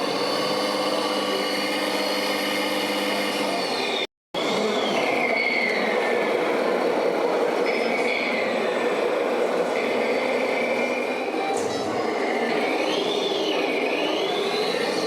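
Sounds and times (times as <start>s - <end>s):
electric motors whining: 0.0s - 6.8s, 9.9s - 15.0s
steady mechanical hum: 0.0s - 15.0s.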